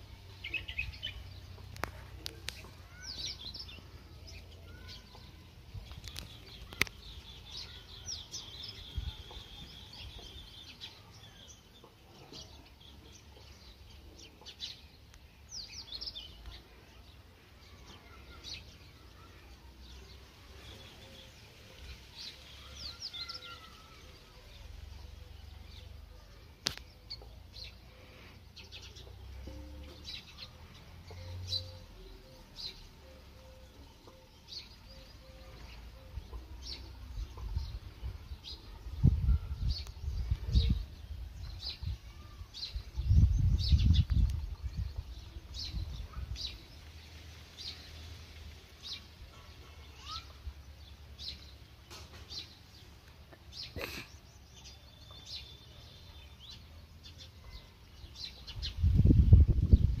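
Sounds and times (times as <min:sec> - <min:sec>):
small birds chirping: 0:00.0 - 1:00.0
low rumble on the microphone: 0:58.5 - 1:00.0.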